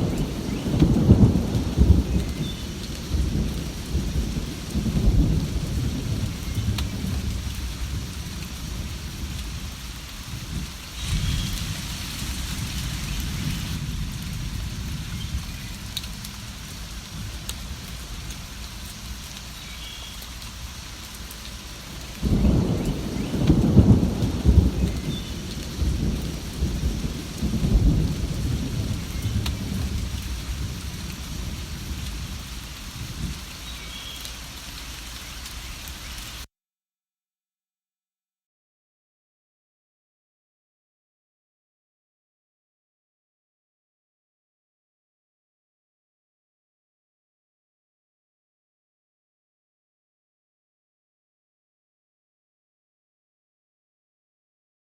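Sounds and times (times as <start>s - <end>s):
rolling thunder: 0.0s - 18.7s, 22.2s - 33.5s
steady rain: 0.0s - 36.5s.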